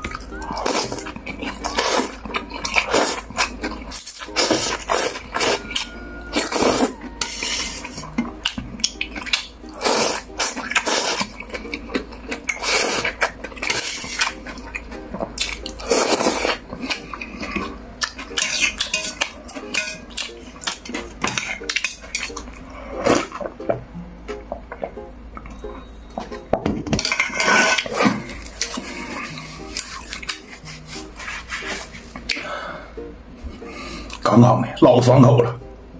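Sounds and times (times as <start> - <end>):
chewing: 0.0 - 23.7, 27.0 - 32.5
slurping noodles: 0.3 - 8.1, 9.1 - 11.6, 12.5 - 14.8, 15.6 - 19.2, 20.7 - 23.5, 27.2 - 32.5
utensils clinking on bowl: 15.4 - 22.6, 26.2 - 28.9.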